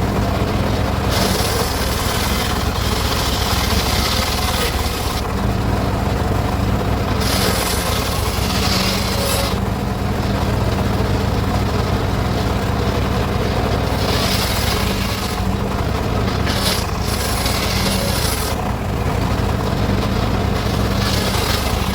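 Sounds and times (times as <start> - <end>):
circular saw cutting wood: 0.0 - 5.6, 7.0 - 10.3, 13.6 - 21.9.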